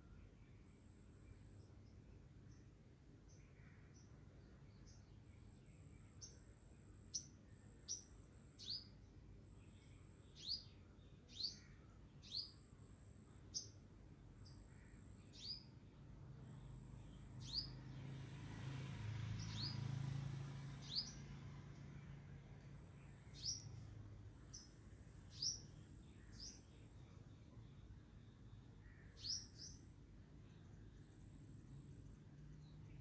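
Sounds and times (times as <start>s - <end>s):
bird chirping: 9.6s - 12.8s, 14.4s - 15.7s, 16.6s - 18.2s, 19.3s - 19.9s, 20.6s - 22.0s, 22.7s - 33.0s.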